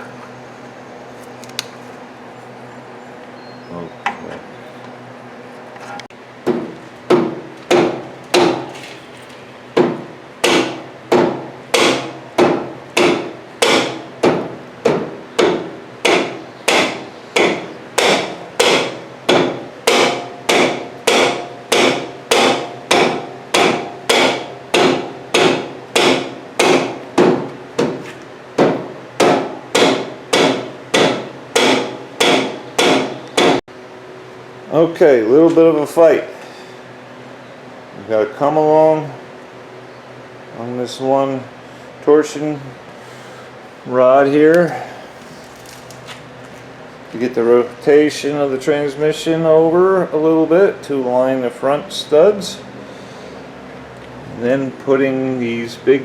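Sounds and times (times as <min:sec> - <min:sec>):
hammer striking metal: 0:06.5 - 0:08.7, 0:09.8 - 0:28.0, 0:28.6 - 0:33.6.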